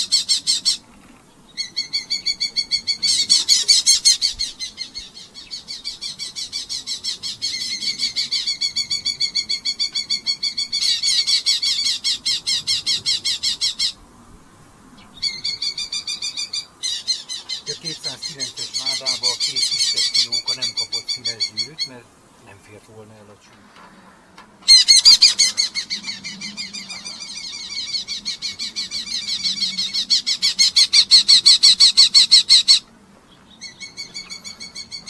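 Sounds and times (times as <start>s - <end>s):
falcon calling harsh notes: 1.6s - 14.0s, 15.2s - 22.1s, 24.6s - 32.9s.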